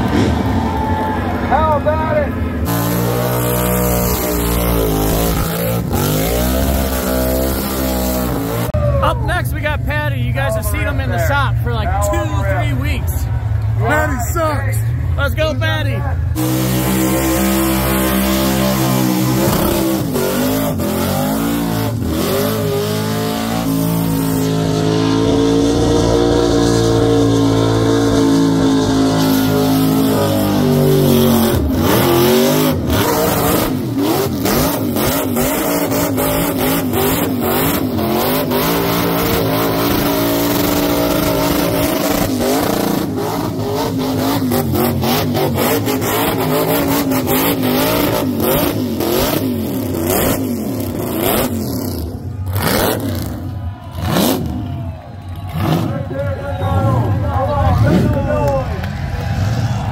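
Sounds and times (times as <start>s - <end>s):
car engine revving hard: 1.6s - 8.8s, 16.3s - 54.7s, 55.5s - 57.1s.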